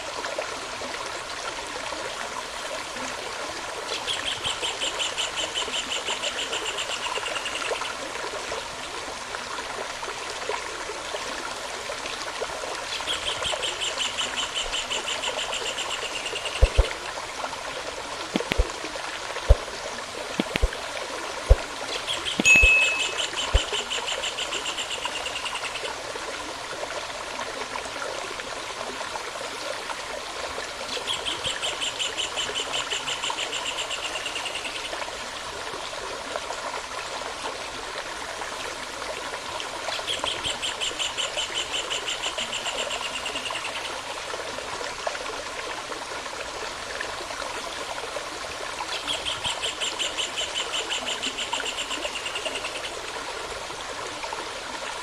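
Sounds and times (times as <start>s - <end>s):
stream running: 0.0s - 55.0s
bird trilling: 22.1s - 23.6s.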